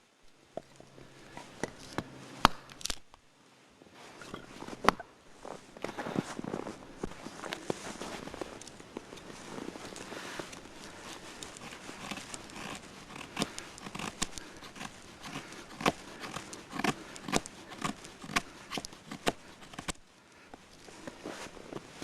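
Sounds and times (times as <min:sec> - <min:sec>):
dry sticks snapping: 0:01.9 - 0:03.2, 0:09.9 - 0:20.0.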